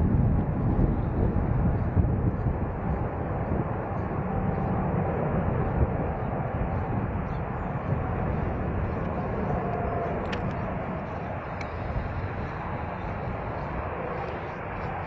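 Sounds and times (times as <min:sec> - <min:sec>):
jet engines rumbling: 0:00.0 - 0:15.0
storm wind gusting on microphone: 0:00.0 - 0:15.0
faint clicks: 0:09.7 - 0:10.6.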